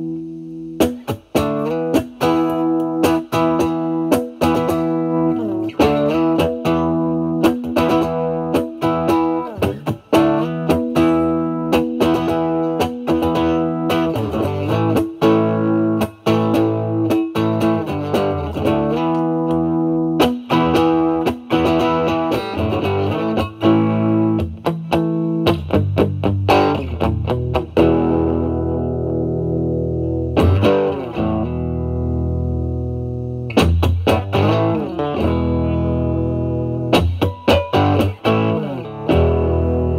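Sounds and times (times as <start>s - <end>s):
overdriven electric guitar: 0.0s - 39.9s.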